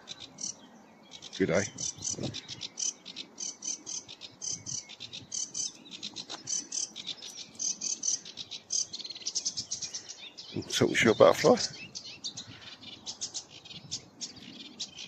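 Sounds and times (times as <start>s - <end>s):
warbler singing chattering song: 0.0s - 15.0s.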